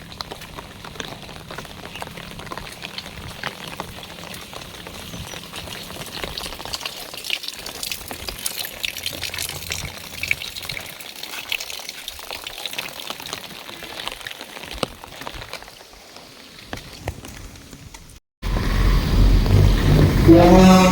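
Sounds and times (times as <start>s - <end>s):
heavy rain falling: 0.0s - 11.2s, 18.4s - 20.9s.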